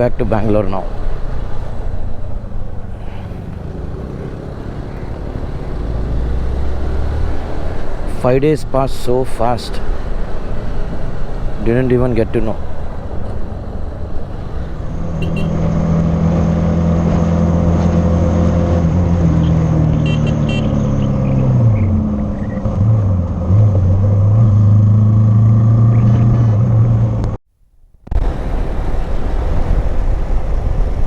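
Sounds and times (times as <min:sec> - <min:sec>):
motorcycle engine running: 0:00.8 - 0:08.2, 0:09.8 - 0:16.6
wind noise: 0:28.0 - 0:31.0.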